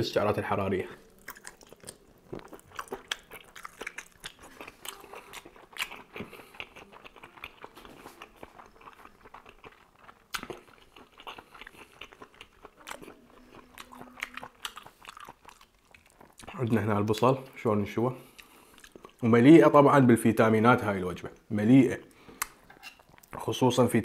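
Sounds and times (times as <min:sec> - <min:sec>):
person chewing food: 0:01.0 - 0:16.6, 0:18.2 - 0:19.2, 0:22.1 - 0:23.4
mouth clicks and smacks: 0:01.2 - 0:13.1.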